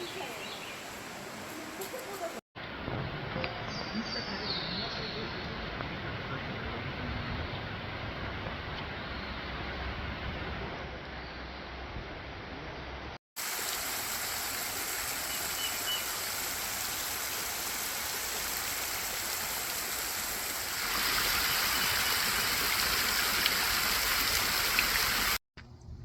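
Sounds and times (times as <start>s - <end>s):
water rushing: 0.0s - 2.4s, 13.4s - 25.4s.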